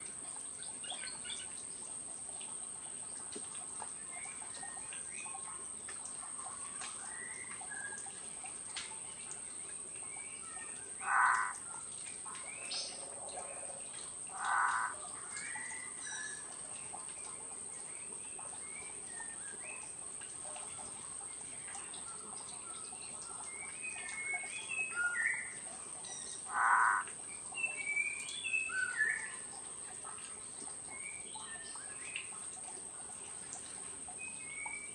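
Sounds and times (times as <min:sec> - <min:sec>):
birds chirping and twittering: 0:09.1 - 0:13.7, 0:14.3 - 0:20.0, 0:21.4 - 0:29.6.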